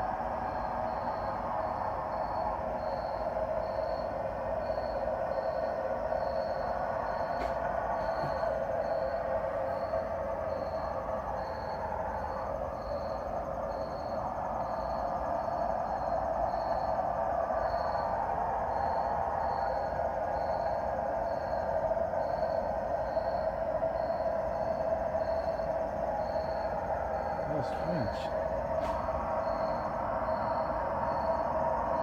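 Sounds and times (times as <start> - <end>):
droning hum in sky: 0.0 - 32.0.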